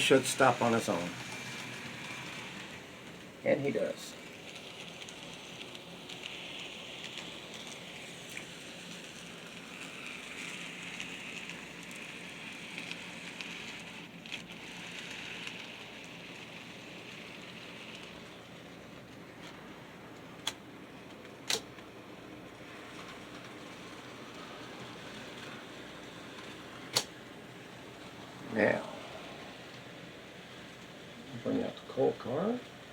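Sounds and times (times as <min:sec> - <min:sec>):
model trains rattling on track: 0:00.0 - 0:18.9
sharp clicks: 0:21.4 - 0:21.8, 0:26.9 - 0:27.2.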